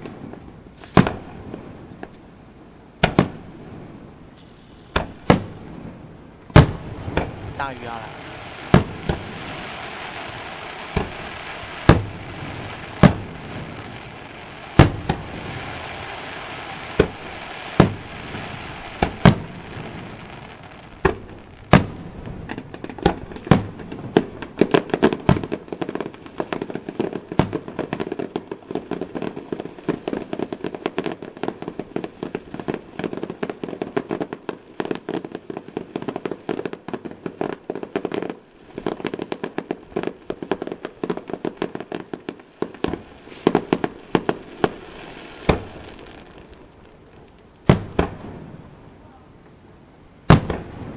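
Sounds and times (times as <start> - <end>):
firework bangs: 0.0 - 50.9
fireworks crackling: 0.0 - 50.9.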